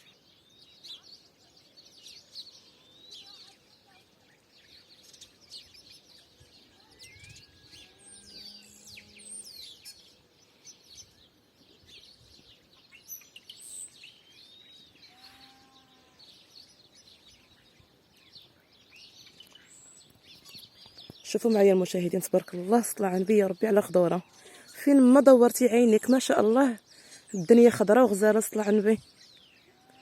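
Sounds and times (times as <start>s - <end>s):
faint low bird calls: 0.0s - 21.5s
small birds chirping: 0.0s - 30.0s.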